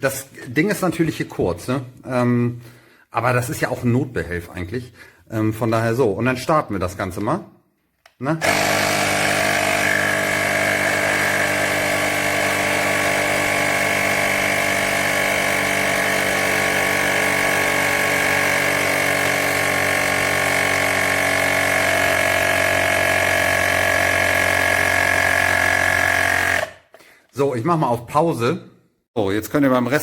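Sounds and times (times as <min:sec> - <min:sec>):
electric tyre pump humming: 0:08.4 - 0:26.9.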